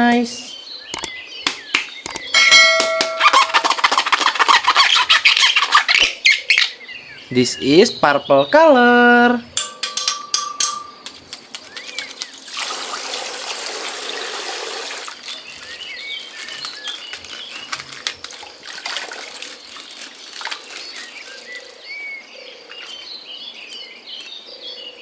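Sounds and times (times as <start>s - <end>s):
water gushing out of plastic bag: 12.4s - 21.6s
plastic bag crinkling: 15.1s - 21.4s.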